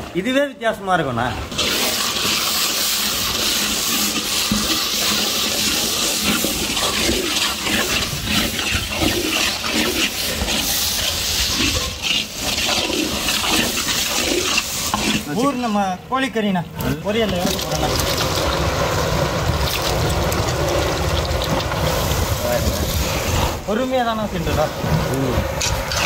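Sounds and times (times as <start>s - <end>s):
ladle stirring and scraping: 1.4s - 16.0s, 16.7s - 23.7s, 25.3s - 26.0s
vegetables sizzling in hot oil: 1.5s - 15.6s, 17.3s - 23.5s.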